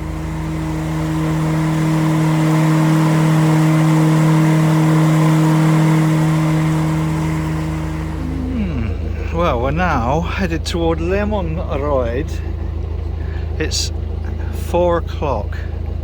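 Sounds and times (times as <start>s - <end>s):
traffic rushing overhead: 0.0s - 12.6s
low boat engine drone: 0.0s - 16.0s.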